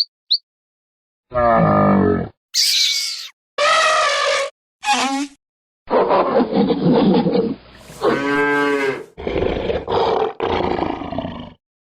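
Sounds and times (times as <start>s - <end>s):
rough roar-like animal call: 1.3s - 2.4s, 7.8s - 11.6s
pitched animal call: 2.6s - 5.3s.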